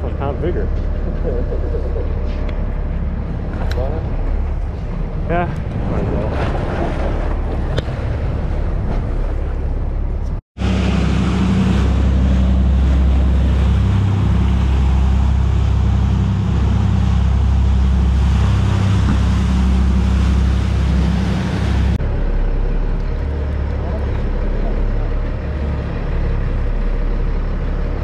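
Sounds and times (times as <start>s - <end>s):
boat engine drone: 0.0s - 28.0s
wind on microphone: 1.8s - 22.0s
rushing water: 2.1s - 28.0s.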